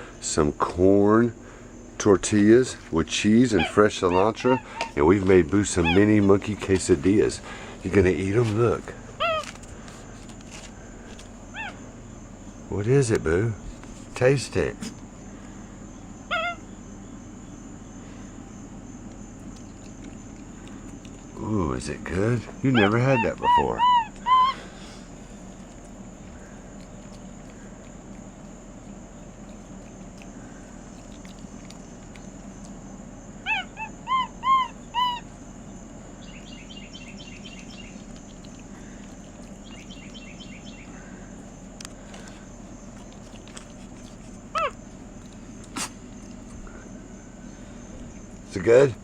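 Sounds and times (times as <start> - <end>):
low background hum: 0.0 - 49.0
monkey chirping: 3.4 - 6.2, 9.2 - 9.5, 11.5 - 11.8, 16.3 - 16.7, 22.6 - 24.7, 33.4 - 35.4, 36.2 - 40.9, 44.5 - 44.9
animal giving short high calls: 3.5 - 6.2, 9.2 - 9.6, 11.5 - 11.9, 16.3 - 16.7, 22.7 - 25.0, 33.4 - 35.4, 44.5 - 44.9.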